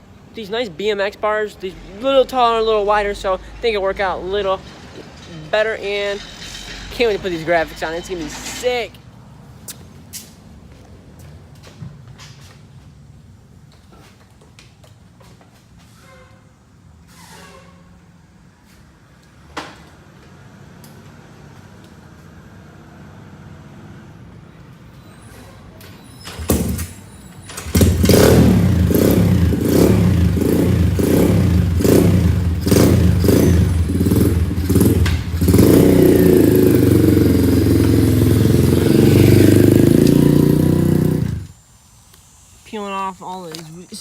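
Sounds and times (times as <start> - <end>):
motorcycle engine starting and running: 26.2 - 41.6.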